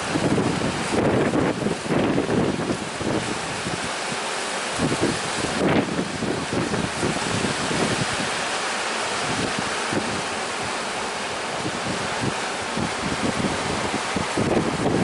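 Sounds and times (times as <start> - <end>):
sea surf: 0.0 - 15.0
wind buffeting microphone: 0.0 - 15.0.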